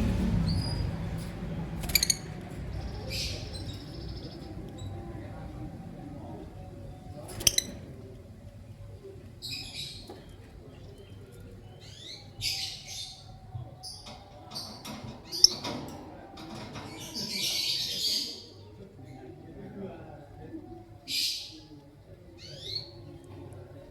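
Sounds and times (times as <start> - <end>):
lovebirds chirping: 0.0 - 8.2.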